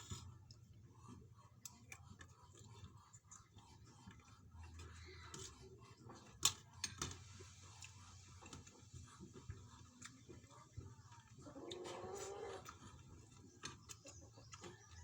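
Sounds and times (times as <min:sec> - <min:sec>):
quiet eating sounds: 0:00.0 - 0:15.0.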